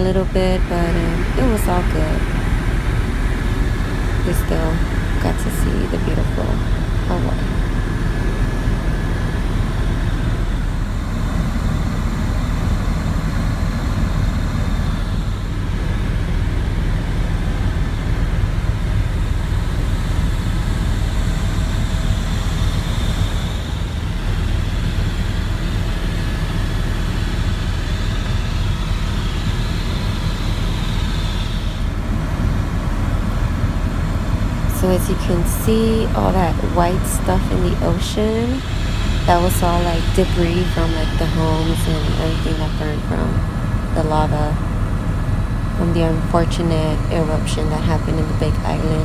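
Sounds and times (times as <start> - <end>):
helicopter engine and rotor drone: 0.0 - 49.0.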